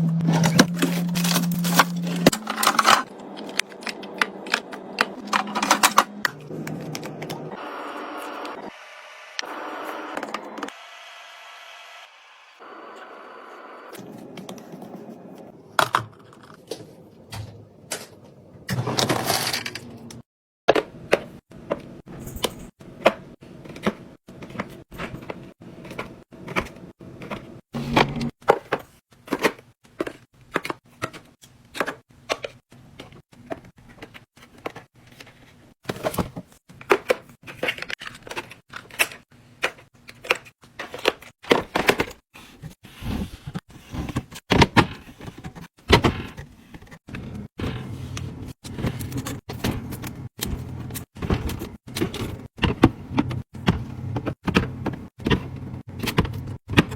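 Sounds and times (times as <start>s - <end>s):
packaging rustle: 0.5s - 5.8s.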